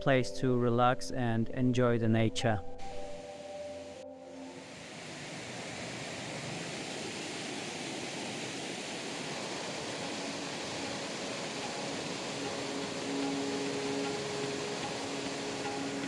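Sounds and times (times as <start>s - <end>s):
river running over rocks: 3.2s - 16.0s.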